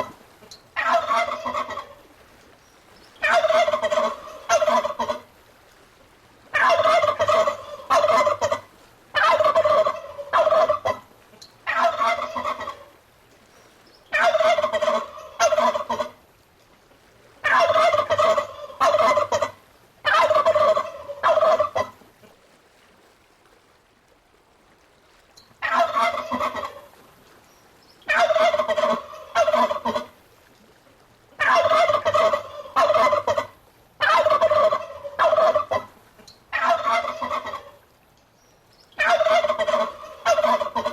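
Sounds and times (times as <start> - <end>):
turkey gobbling: 0.8 - 2.0, 3.2 - 5.2, 6.5 - 11.0, 11.6 - 12.9, 14.1 - 16.2, 17.4 - 22.0, 25.6 - 26.9, 28.1 - 30.1, 31.4 - 37.8, 39.0 - 40.9.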